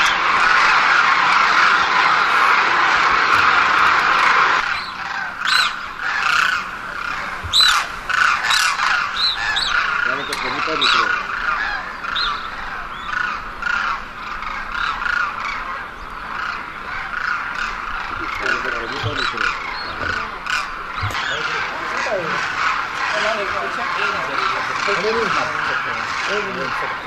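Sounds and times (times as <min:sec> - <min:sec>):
birds squawking: 0:00.0 - 0:27.0.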